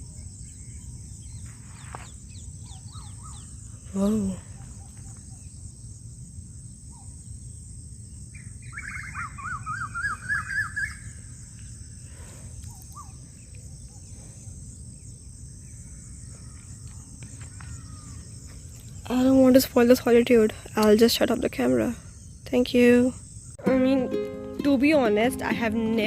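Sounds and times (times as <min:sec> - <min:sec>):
outdoor background hiss: 0:00.0 - 0:26.0
songbird warbling: 0:00.4 - 0:05.5, 0:08.4 - 0:11.8, 0:12.6 - 0:14.1.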